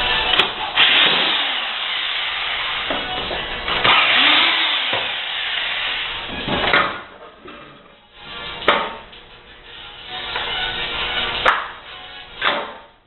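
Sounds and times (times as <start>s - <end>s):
background music: 0.0s - 1.6s, 2.2s - 13.0s
harsh mechanical noise: 0.0s - 7.2s.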